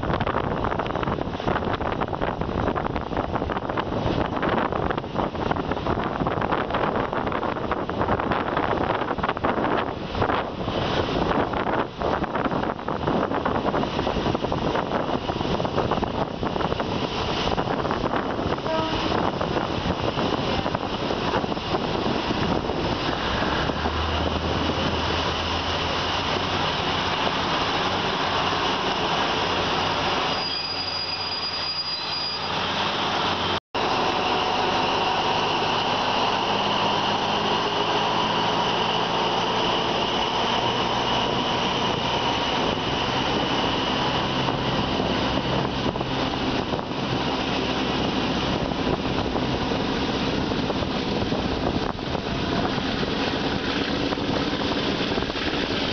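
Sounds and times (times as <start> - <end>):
air at open window: 0.0 - 30.5, 31.5 - 55.9
train wheels on track: 0.0 - 55.9
high wheel squeal: 29.7 - 44.5.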